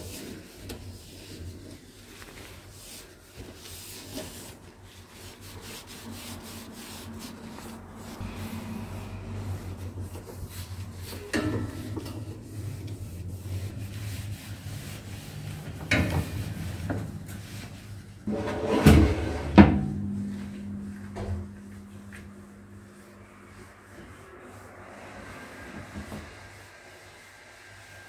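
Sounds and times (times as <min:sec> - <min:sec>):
steady low hum: 0:18.0 - 0:25.8.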